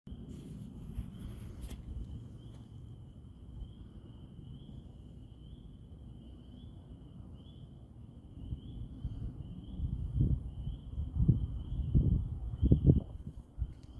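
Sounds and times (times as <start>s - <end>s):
low background rumble: 0.1s - 13.9s.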